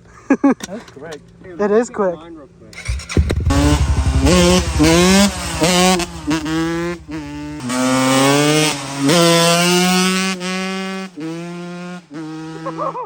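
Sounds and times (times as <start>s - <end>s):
dirt bike engine revving: 2.8s - 10.9s.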